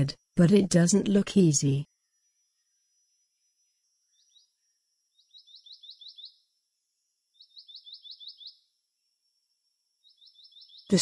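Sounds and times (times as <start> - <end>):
bird singing rising notes: 5.2 - 6.5, 7.3 - 8.7.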